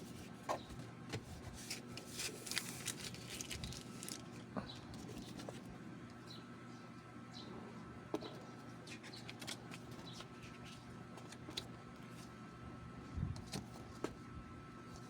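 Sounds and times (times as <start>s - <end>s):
card packaging rustling: 1.3s - 5.6s.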